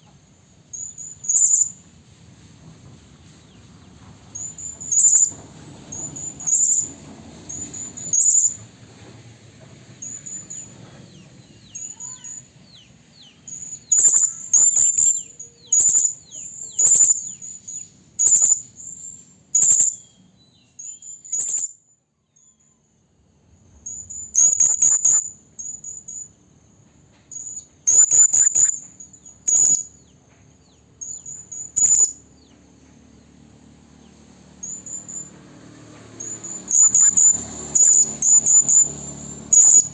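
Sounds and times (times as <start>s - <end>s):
parrot high-pitched shrill calls: 0.7s - 1.8s, 4.4s - 6.9s, 7.5s - 8.6s, 11.6s - 12.5s, 13.4s - 20.2s, 20.8s - 22.8s, 23.8s - 26.3s, 27.3s - 30.0s, 31.0s - 32.2s, 34.6s - 35.4s, 36.2s - 39.9s.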